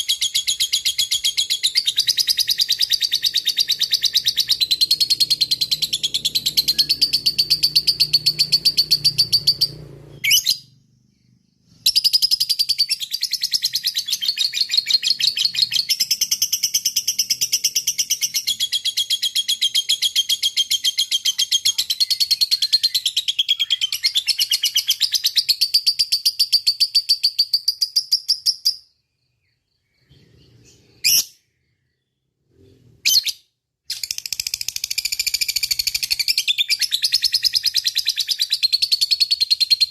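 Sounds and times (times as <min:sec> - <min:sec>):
single bird chirps: 0:00.0 - 0:16.5.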